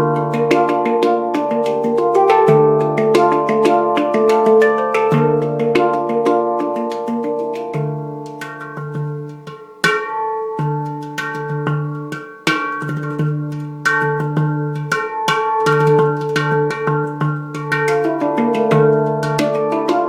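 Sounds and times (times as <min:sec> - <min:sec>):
handpan played by hand: 0:00.0 - 0:20.0.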